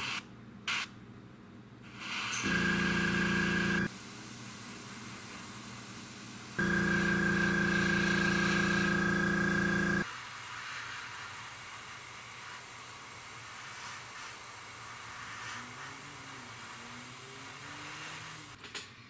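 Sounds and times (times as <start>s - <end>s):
air compressor motor humming: 2.4s - 3.9s, 6.6s - 10.0s
airbrush hissing: 6.6s - 11.8s, 13.4s - 18.6s.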